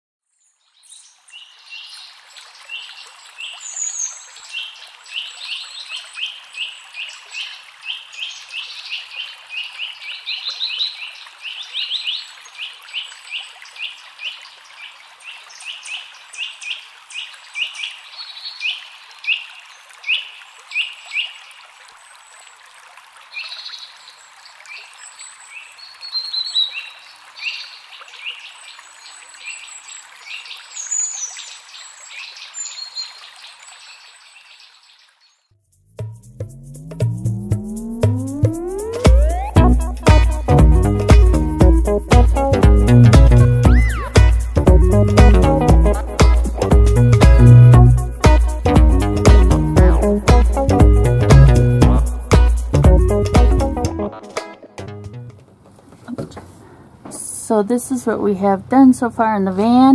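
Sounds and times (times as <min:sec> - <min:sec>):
songbirds chirping: 0:38.3 - 0:48.4.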